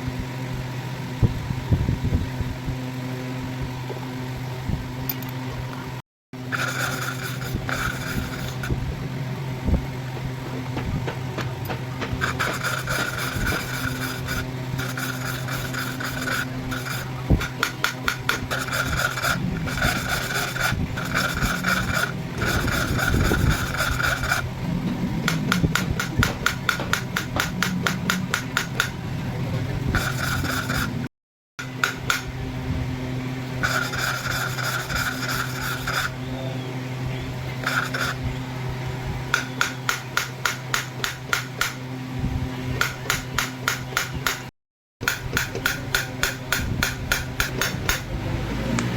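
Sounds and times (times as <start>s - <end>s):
steady machine hum: 0.0s - 48.9s
metal rasping and scraping: 6.4s - 32.4s, 33.6s - 36.3s, 37.5s - 38.4s, 42.8s - 48.1s
rapid fine clatter: 10.7s - 31.0s.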